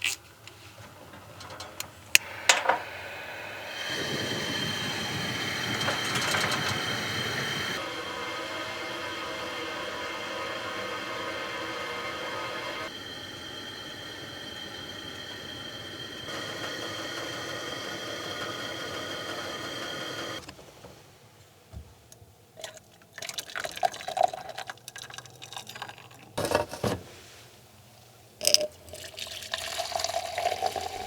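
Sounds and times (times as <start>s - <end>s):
water being poured: 22.6s - 26.3s, 28.4s - 31.0s.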